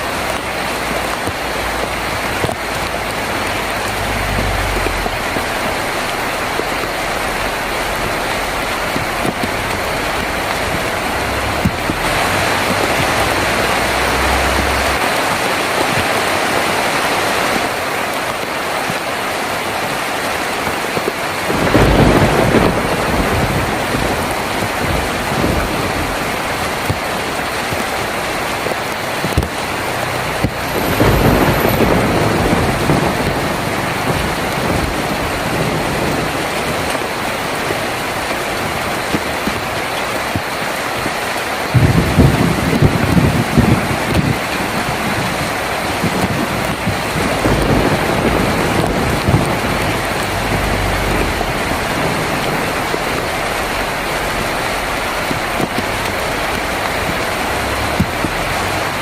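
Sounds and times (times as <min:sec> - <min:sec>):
heavy rain on a tin roof: 0:00.0 - 0:59.0
thunder rumbling: 0:00.0 - 0:59.0.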